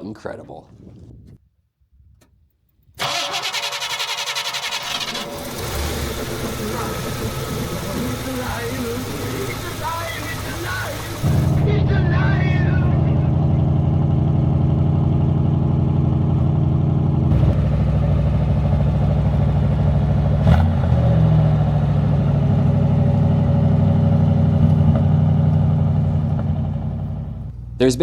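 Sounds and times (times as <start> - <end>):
car engine running: 3.0 - 28.0.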